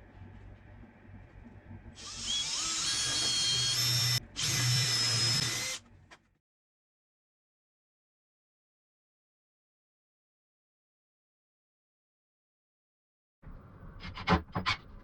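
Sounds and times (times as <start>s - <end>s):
power drill drilling into wood: 2.0s - 5.8s.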